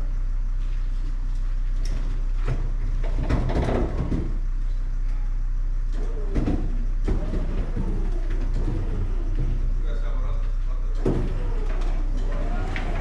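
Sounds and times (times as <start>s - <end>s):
knocks and rattles: 1.8s - 4.4s, 5.9s - 9.8s, 11.0s - 13.0s.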